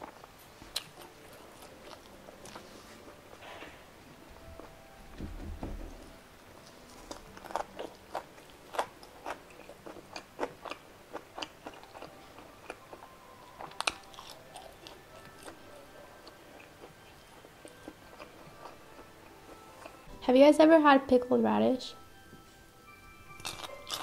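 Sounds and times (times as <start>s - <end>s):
crunchy chewing: 0.0s - 3.8s, 6.6s - 20.1s, 23.3s - 24.0s.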